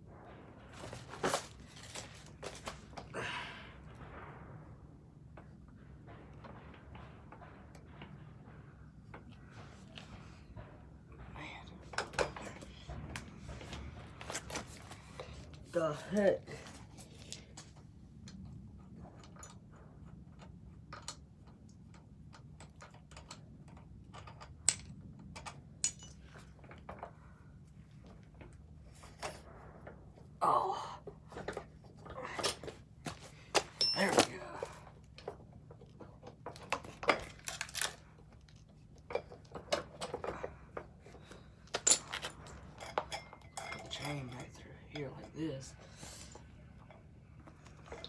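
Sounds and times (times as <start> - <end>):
metal parts clinking and rattling: 0.8 - 3.0, 22.3 - 27.2, 31.4 - 45.7.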